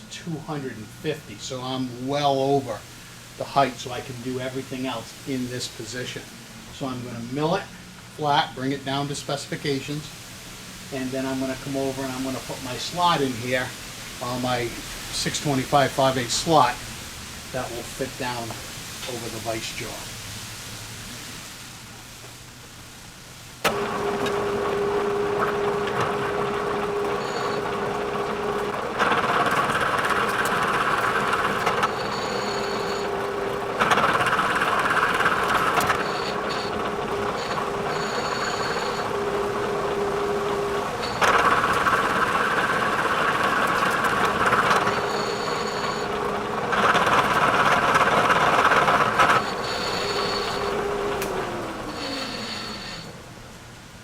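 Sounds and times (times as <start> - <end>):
milling machine spindle humming: 0.0 - 20.1, 23.6 - 54.0
cutter milling metal: 23.6 - 53.3.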